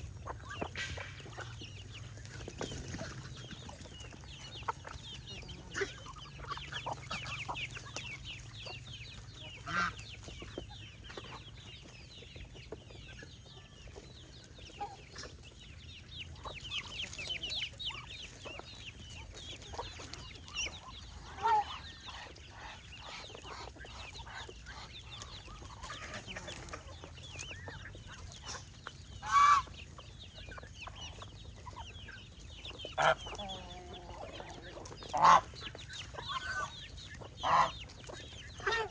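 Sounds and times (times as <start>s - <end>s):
chicks peeping: 0.0s - 38.9s
louder lower poultry calls: 34.8s - 35.6s, 37.4s - 37.8s.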